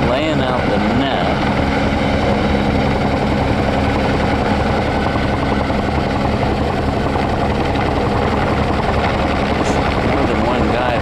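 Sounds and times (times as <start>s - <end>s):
car engine idling: 6.2s - 11.0s.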